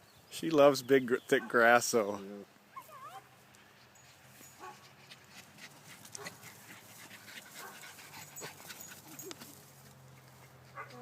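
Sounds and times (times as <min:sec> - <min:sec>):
dogs whimpering faintly: 0:02.7 - 0:03.3, 0:07.6 - 0:11.0
dogs panting: 0:03.7 - 0:11.0.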